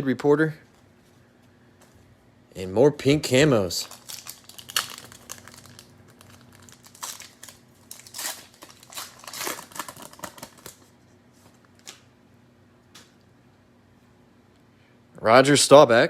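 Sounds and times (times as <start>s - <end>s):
plastic wrapper crinkling and tearing: 3.3s - 10.9s.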